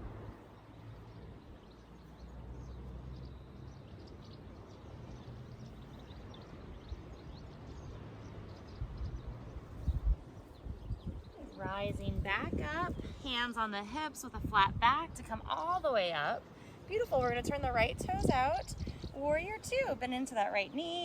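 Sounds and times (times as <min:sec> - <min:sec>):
steady low rumble: 0:08.8 - 0:16.0.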